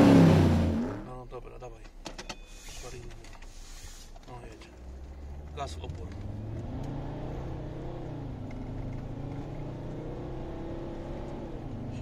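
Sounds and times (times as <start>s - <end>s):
diesel engine at full throttle: 0.0s - 1.1s, 5.2s - 12.0s.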